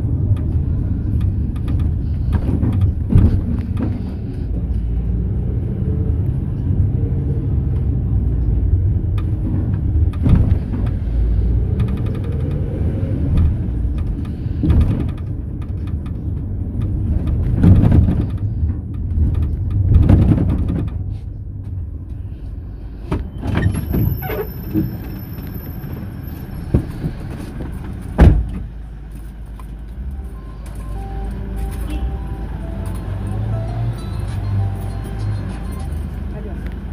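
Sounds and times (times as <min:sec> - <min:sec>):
bumps and rattles: 0:00.0 - 0:05.1, 0:08.7 - 0:22.2
engine and road rumble: 0:00.0 - 0:36.9.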